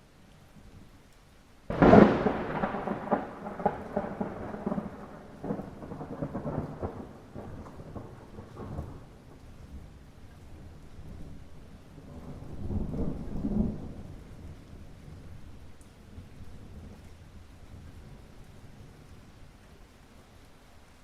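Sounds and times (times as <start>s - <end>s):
light rain falling: 0.0s - 21.0s
thunderclap and rumbling: 1.7s - 10.0s, 10.6s - 15.3s.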